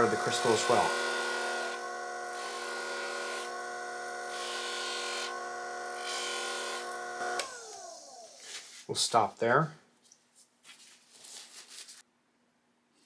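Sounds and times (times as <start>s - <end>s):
bench grinder whining: 0.0s - 8.6s.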